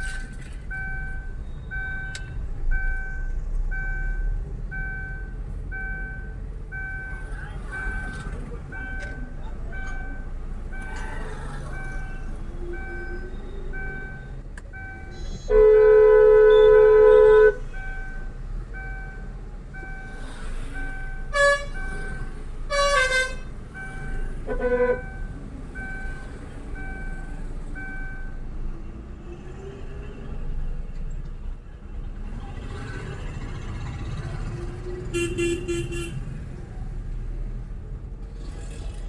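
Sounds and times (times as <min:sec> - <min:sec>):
faint repeating beep: 0:00.0 - 0:15.6, 0:17.7 - 0:22.3
traffic rumble: 0:00.0 - 0:39.0
vehicle horn honking: 0:15.0 - 0:17.8, 0:21.2 - 0:21.8, 0:22.7 - 0:25.3, 0:35.1 - 0:36.2.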